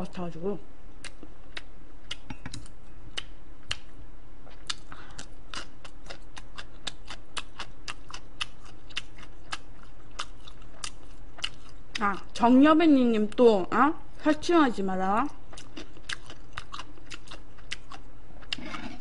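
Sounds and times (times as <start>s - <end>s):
low electrical hum: 0.0s - 19.0s
person chewing food: 1.0s - 12.4s, 15.3s - 19.0s.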